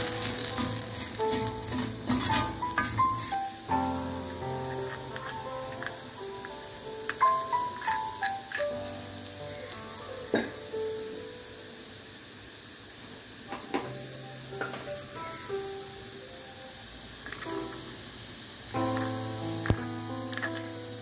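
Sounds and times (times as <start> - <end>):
soft background music: 0.0 - 11.6, 17.2 - 21.0
seeds sizzling in oil: 0.0 - 21.0.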